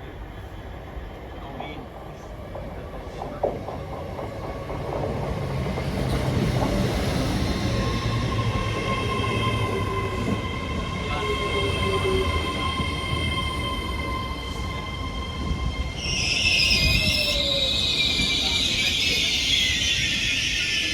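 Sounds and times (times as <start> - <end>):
train arriving: 0.0 - 20.9
high-pitched squeal: 7.4 - 20.9.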